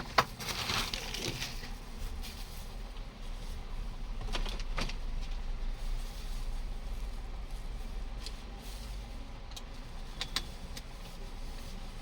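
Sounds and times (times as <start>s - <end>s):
scraping on plastic: 0.0s - 2.8s
steady low hum: 0.0s - 12.0s.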